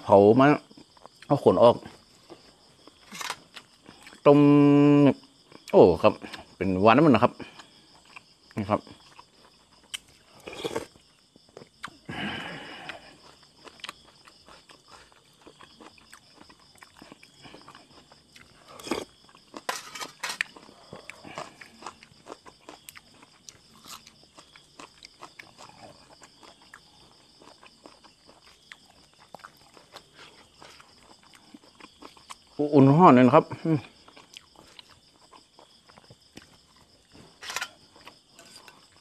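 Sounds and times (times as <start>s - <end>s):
crickets chirping: 0.0s - 39.0s
wet chewing crunches: 7.4s - 12.0s, 12.7s - 32.6s, 33.8s - 39.0s.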